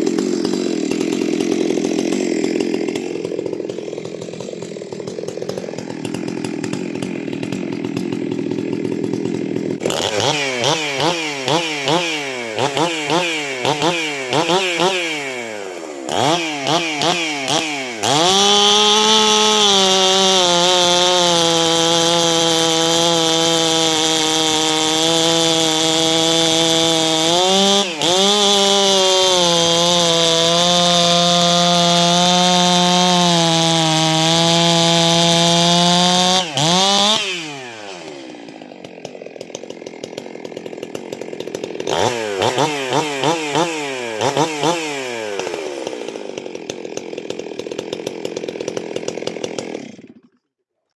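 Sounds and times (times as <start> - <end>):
chainsaw revving: 0.0 - 50.4.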